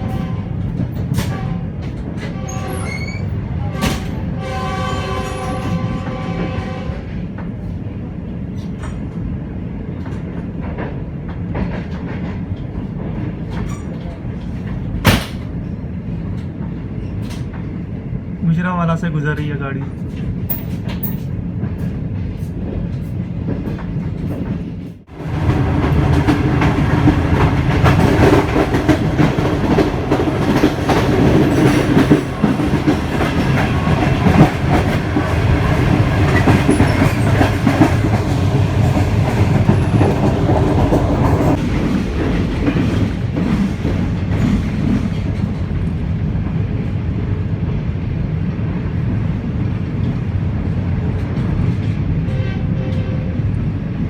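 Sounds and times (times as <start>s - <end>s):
train wheels clicking over rail joints: 8.4s - 17.9s, 19.9s - 46.6s.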